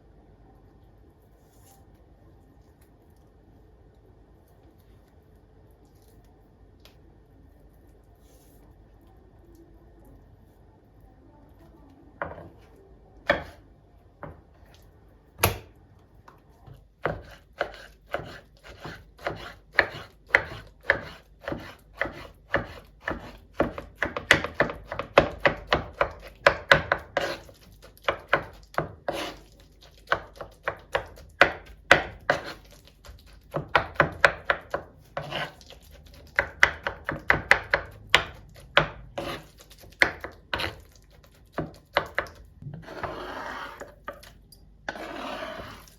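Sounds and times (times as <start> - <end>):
knife chopping on cutting board: 13.3 - 13.6, 16.7 - 44.3, 44.9 - 45.9.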